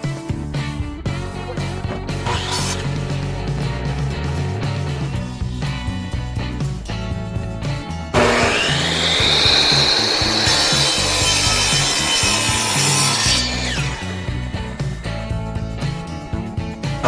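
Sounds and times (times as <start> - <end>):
saw cutting wooden board: 1.4 - 4.0, 8.1 - 15.4
electric power saw whining: 2.1 - 4.2, 8.1 - 15.6.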